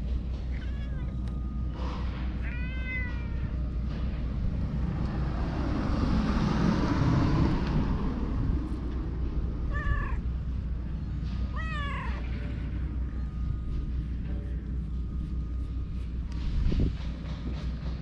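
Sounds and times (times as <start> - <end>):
broad rush of noise: 0.0 - 18.0
steady low hum: 0.0 - 18.0
cat meowing: 0.5 - 1.2, 2.4 - 3.6, 9.7 - 10.2, 11.5 - 12.3.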